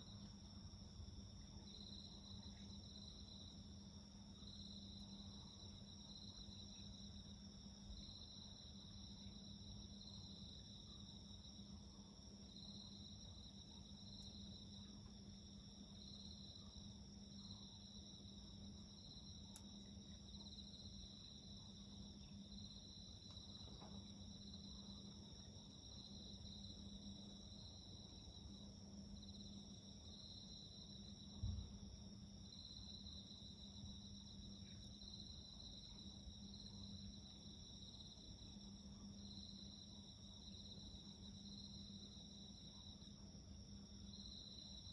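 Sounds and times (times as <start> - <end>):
dull low thump: 31.4 - 31.7.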